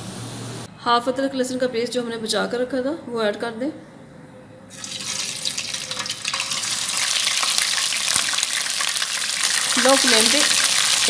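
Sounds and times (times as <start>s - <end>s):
paste sizzling in hot oil: 4.7s - 11.0s.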